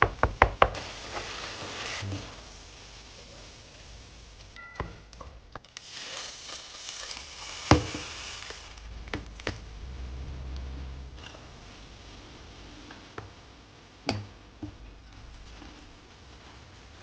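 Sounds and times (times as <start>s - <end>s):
utensils and cookware knocking: 4.6s - 5.2s.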